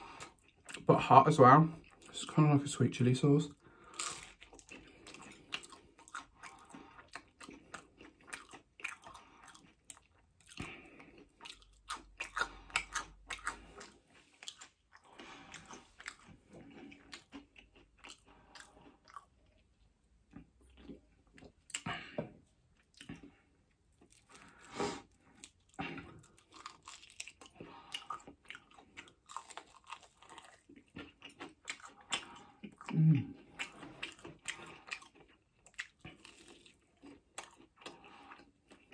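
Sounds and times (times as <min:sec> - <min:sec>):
chewing and crunching food: 0:00.0 - 0:38.9
low vocal hum: 0:32.9 - 0:33.4.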